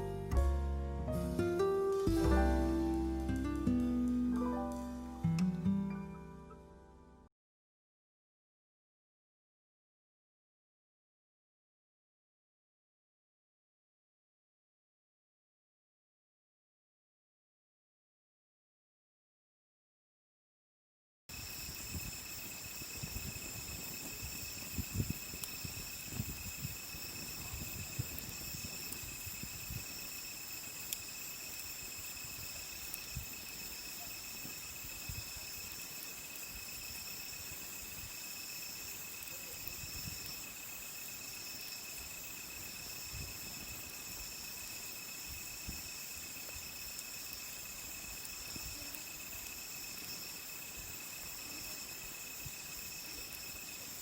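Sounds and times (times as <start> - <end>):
crickets and night insects trilling: 21.3 - 54.0.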